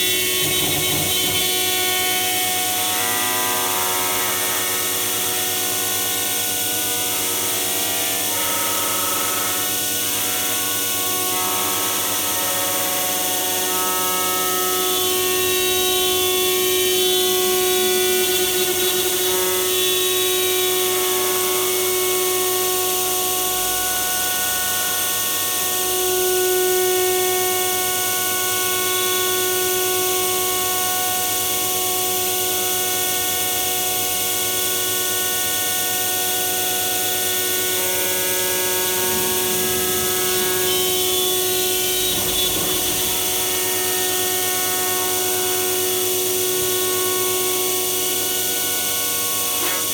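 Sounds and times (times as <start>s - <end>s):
machine spindle whine: 0.0s - 7.3s, 13.1s - 23.6s, 33.8s - 49.1s
machining hiss: 37.6s - 45.4s.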